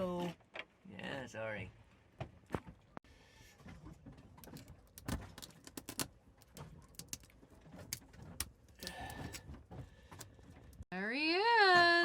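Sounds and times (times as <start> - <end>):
shell cracking and clicking: 4.4 - 9.4.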